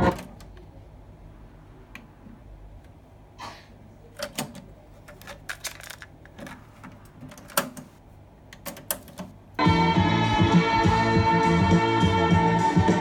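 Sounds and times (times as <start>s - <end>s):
cassette deck clicks and clunks: 4.2s - 9.4s
music playing from tape: 9.6s - 13.0s.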